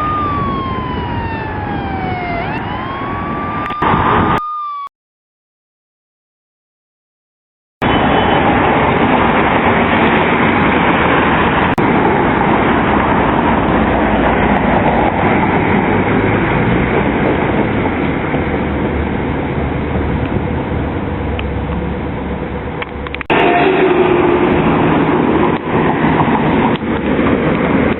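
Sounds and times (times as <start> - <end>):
vehicle rumble: 0.0 - 4.2, 7.8 - 23.4
road noise: 0.0 - 4.3, 7.8 - 27.9.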